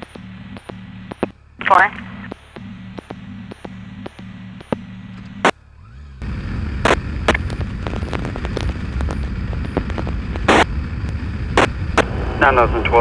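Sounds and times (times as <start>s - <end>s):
low hum with faint clicks: 0.0s - 5.6s, 6.2s - 13.0s
sharp pops: 0.0s - 5.6s, 6.8s - 12.1s
motorcycle engine: 0.9s - 12.4s
wind noise: 6.2s - 13.0s.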